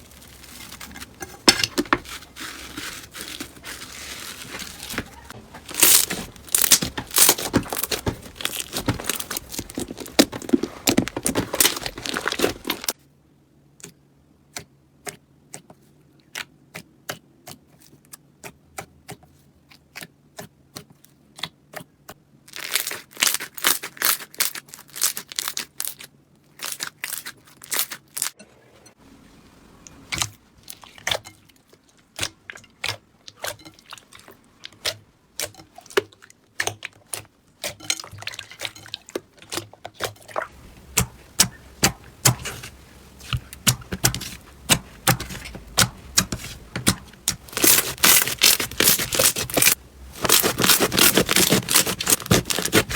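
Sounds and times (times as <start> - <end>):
slime crackling and popping: 2.0 - 13.0, 22.5 - 28.4, 40.4 - 52.9.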